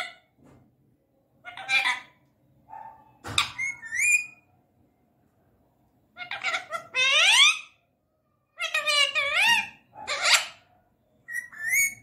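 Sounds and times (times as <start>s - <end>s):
parakeet calling: 1.4s - 2.2s, 3.4s - 4.4s, 6.2s - 7.8s, 8.6s - 12.0s.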